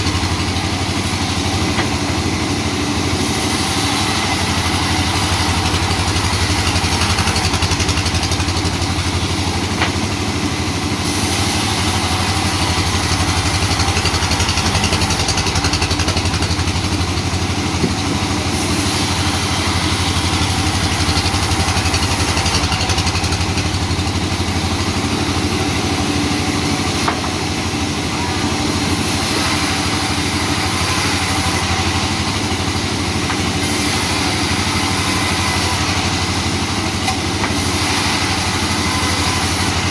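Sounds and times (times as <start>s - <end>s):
broad machinery hiss: 0.0s - 39.9s
sawmill engine drone: 0.0s - 39.9s.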